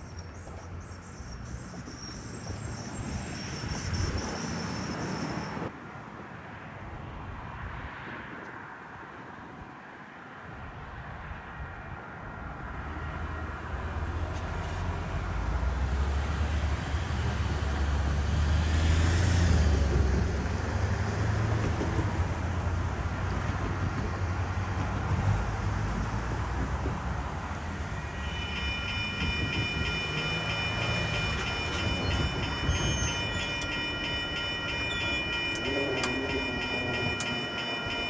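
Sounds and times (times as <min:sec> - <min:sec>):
vehicle rumble: 0:13.5 - 0:38.0.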